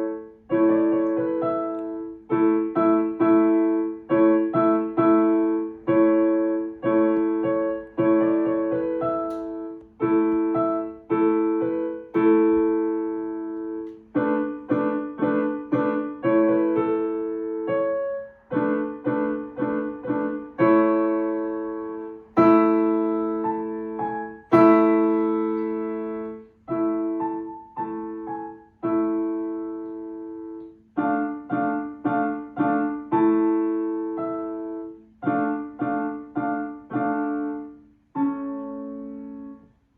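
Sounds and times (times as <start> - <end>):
solo piano playing chords: 0.0 - 39.9.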